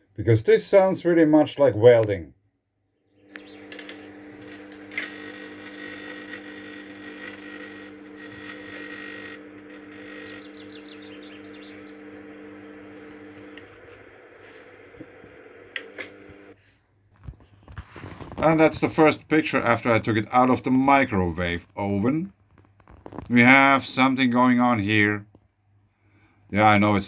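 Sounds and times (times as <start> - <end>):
microwave oven humming: 3.1 - 16.6
plasma arc crackling: 3.3 - 16.5.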